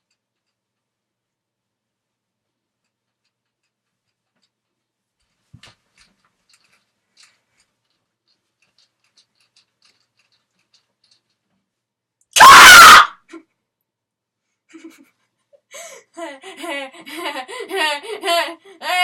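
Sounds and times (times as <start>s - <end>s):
faint clicks and rustles: 0.0s - 12.3s.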